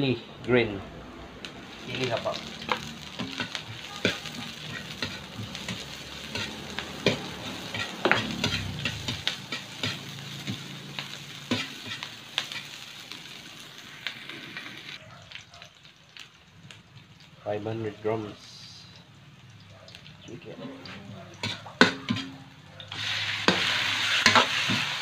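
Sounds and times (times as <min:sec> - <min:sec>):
vegetables sizzling in oil: 0:01.4 - 0:25.0
metal ladle scraping wok: 0:01.8 - 0:12.8, 0:20.7 - 0:25.0.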